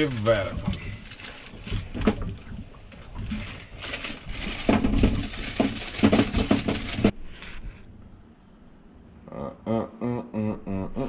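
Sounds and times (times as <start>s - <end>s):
knocks and clatter of handled objects: 0.0s - 7.2s.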